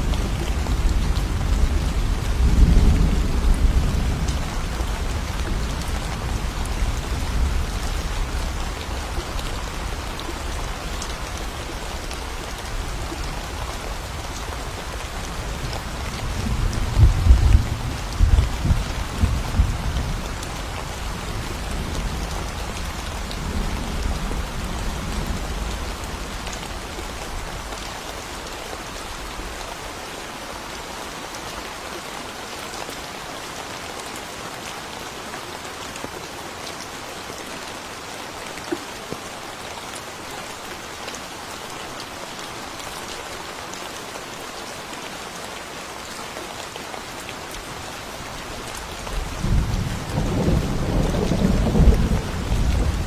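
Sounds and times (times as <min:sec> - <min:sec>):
rain falling in forest: 0:00.0 - 0:53.0
low thunder rumble: 0:16.2 - 0:20.2, 0:49.2 - 0:53.0.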